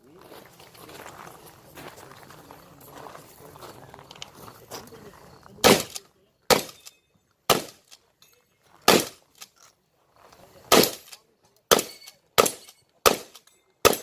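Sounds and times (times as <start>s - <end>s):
shotgun shots with echo: 5.6s - 6.8s, 7.5s - 7.8s, 8.9s - 9.2s, 10.7s - 11.1s, 11.7s - 14.0s.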